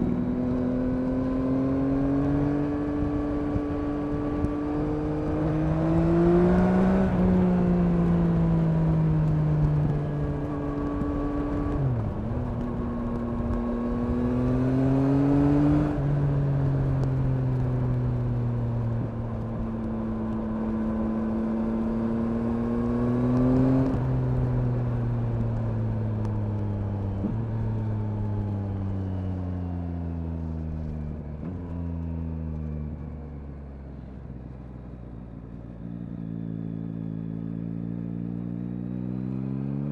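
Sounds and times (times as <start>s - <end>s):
motorcycle engine revving: 0.0s - 27.8s, 35.8s - 39.9s.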